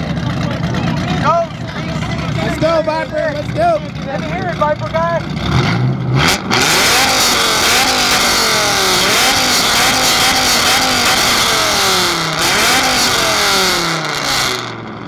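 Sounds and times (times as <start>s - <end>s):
car engine revving hard: 2.1s - 15.0s.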